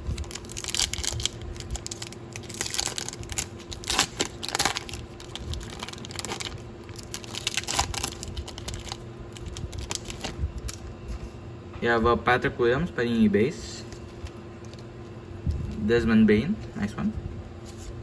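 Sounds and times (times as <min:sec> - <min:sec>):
foil wrapper tearing and crinkling: 0:00.0 - 0:10.9
faint steady hum: 0:00.0 - 0:18.0.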